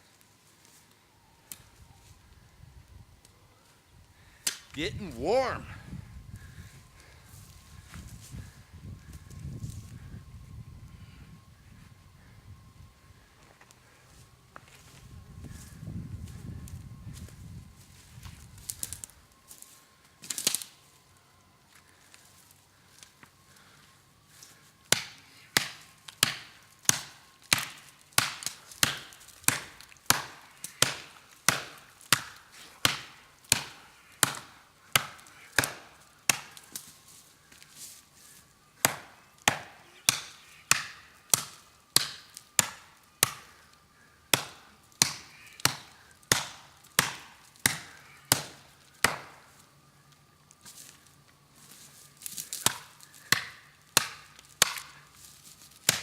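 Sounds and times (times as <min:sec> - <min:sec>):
blade chopping into tree trunk: 0:24.9 - 0:36.9, 0:38.8 - 0:43.5, 0:44.3 - 0:49.4, 0:52.5 - 0:54.9.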